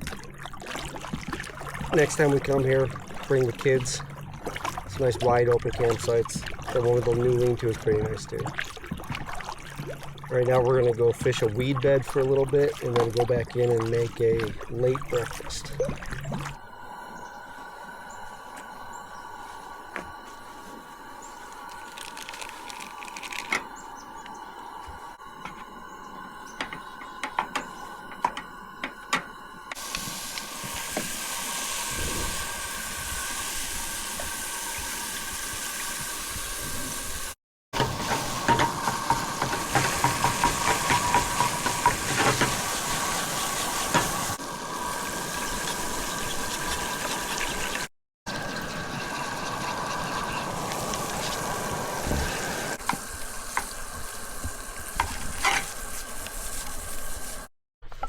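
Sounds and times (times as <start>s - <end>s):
food sizzling in a pan: 29.8s - 47.9s.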